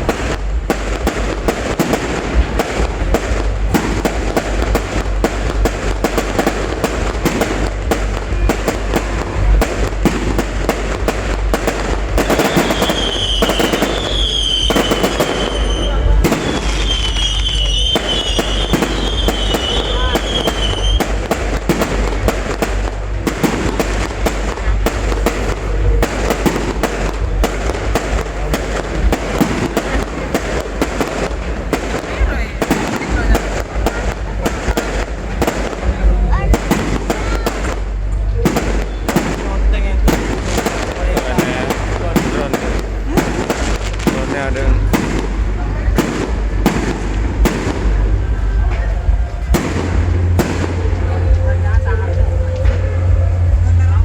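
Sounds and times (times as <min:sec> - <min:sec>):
fireworks bursts and crackles: 0:00.0 - 0:54.0.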